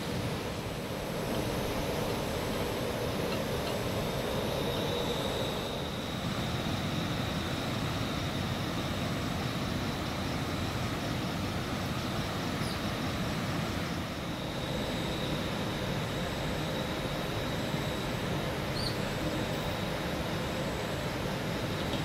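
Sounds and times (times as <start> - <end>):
high whine: 0.0 - 22.0.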